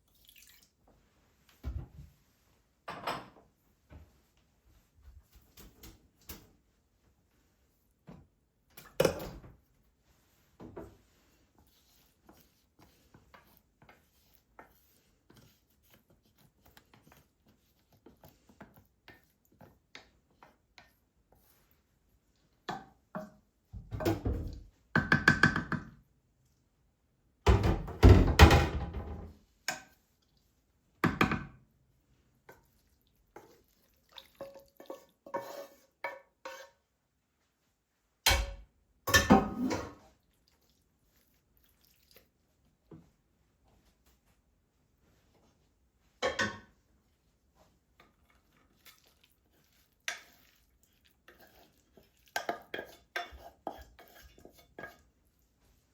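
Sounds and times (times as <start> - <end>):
dishes and utensils clattering: 2.9 - 3.4, 38.3 - 40.0, 46.2 - 46.7, 51.3 - 55.0.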